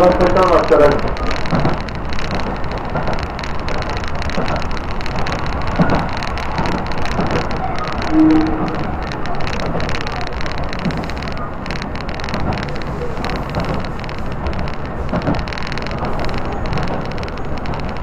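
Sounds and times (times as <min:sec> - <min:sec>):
train wheels rumbling on rail: 0:00.0 - 0:18.0
brief tone: 0:08.0 - 0:09.1.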